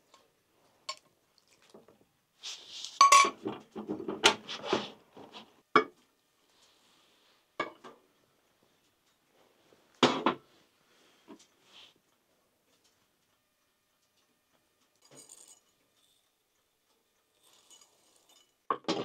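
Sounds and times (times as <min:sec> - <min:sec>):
dishes clinking and scraping: 0:02.9 - 0:04.9, 0:14.9 - 0:19.0.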